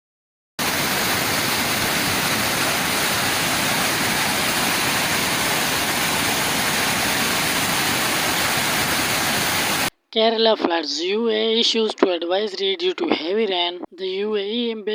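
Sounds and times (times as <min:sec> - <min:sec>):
rushing water: 0:00.6 - 0:09.9.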